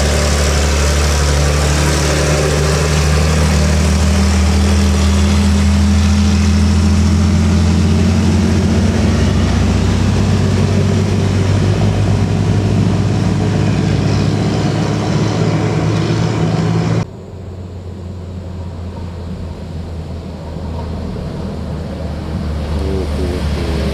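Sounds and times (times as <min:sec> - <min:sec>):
truck diesel engine running: 0:00.0 - 0:23.9
quiet rumble: 0:08.4 - 0:23.9.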